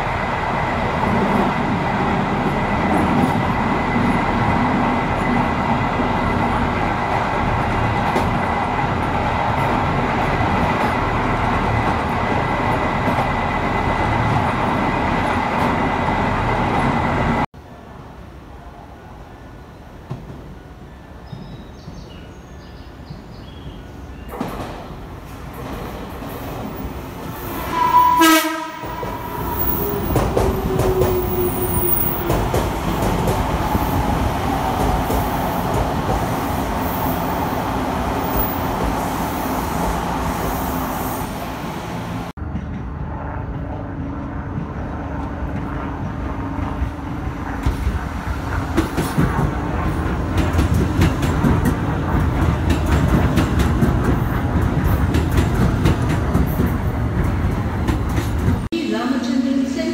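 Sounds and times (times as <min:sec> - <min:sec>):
train horn blast: 0:27.5 - 0:32.2
train wheels clattering: 0:28.7 - 0:39.1, 0:45.5 - 0:58.7.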